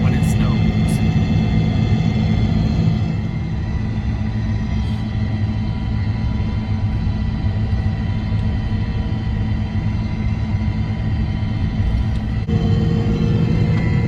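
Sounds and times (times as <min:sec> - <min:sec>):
loader engine rumbling: 0:00.0 - 0:05.7, 0:11.7 - 0:14.0.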